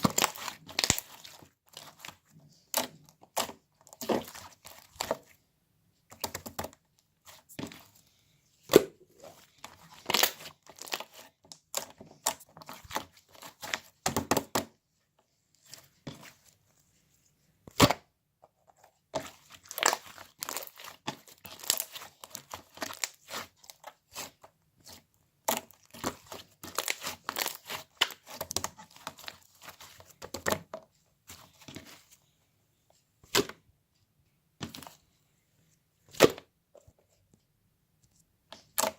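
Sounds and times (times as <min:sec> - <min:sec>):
slime crackling and popping: 0:00.0 - 0:02.1, 0:09.6 - 0:13.9, 0:19.6 - 0:24.4, 0:25.5 - 0:30.4.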